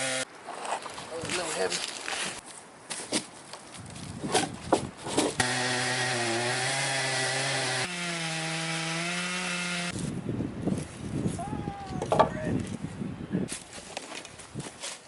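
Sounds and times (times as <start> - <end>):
electric saw cutting wood: 5.4 - 9.9.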